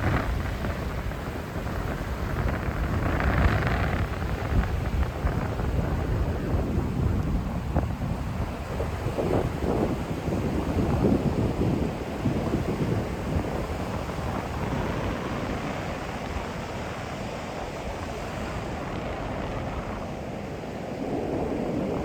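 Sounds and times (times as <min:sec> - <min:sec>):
heavy sea surf breaking: 0:00.0 - 0:22.0
wind rumble on microphone: 0:00.0 - 0:22.0.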